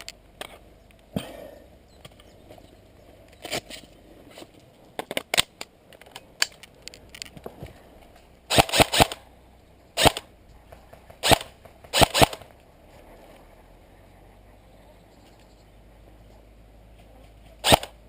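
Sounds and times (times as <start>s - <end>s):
airsoft rifle shots: 8.5s - 9.2s, 10.0s - 10.3s, 11.1s - 12.5s, 17.6s - 18.0s.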